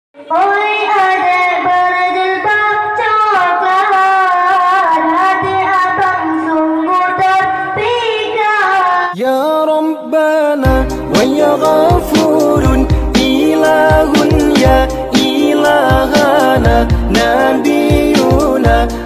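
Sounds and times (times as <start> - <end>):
boys singing devotional chant: 0.3 - 19.0
intro jingle with heavy beat: 10.6 - 19.0.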